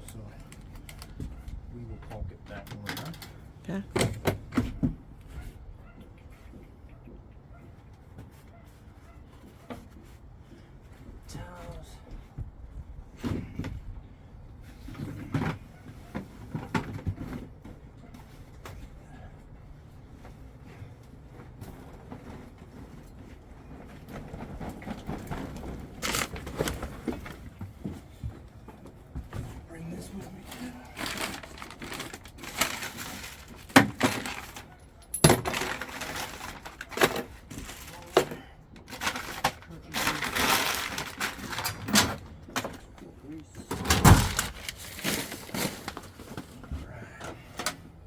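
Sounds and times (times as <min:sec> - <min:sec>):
low steady background hum: 0:00.0 - 0:48.0
hard objects clinking and knocking: 0:31.0 - 0:37.3.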